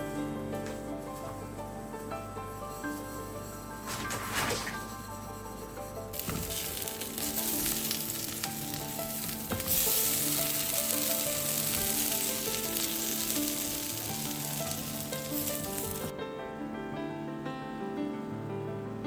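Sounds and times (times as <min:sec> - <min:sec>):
soft background music: 0:00.0 - 0:19.0
food sizzling in a pan: 0:06.2 - 0:16.1.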